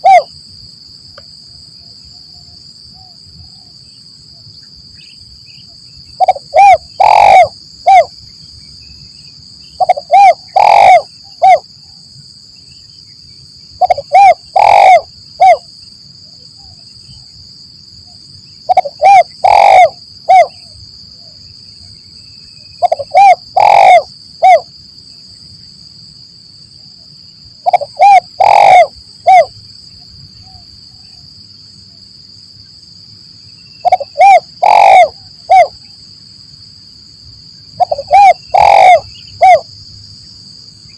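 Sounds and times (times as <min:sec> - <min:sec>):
dove cooing: 0:00.0 - 0:00.3, 0:06.2 - 0:08.1, 0:09.8 - 0:11.6, 0:13.8 - 0:15.7, 0:18.7 - 0:20.7, 0:22.8 - 0:24.7, 0:27.6 - 0:29.5, 0:33.8 - 0:35.8, 0:37.8 - 0:39.7
high insect drone: 0:00.0 - 0:40.9.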